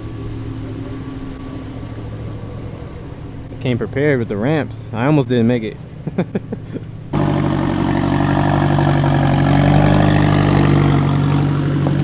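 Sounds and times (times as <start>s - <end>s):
car engine running: 7.0s - 12.0s.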